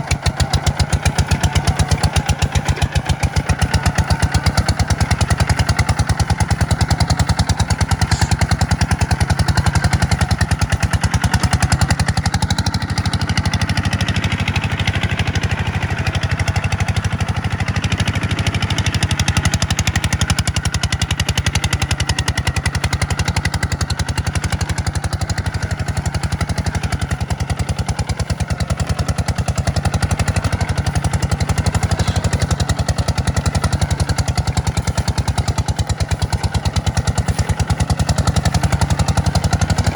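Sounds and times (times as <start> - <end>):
tractor diesel engine clattering: 0.0 - 39.9.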